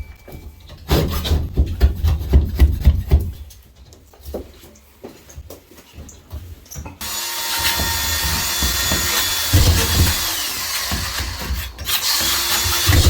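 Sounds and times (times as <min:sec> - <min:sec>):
power tool running: 0:07.0 - 0:13.0.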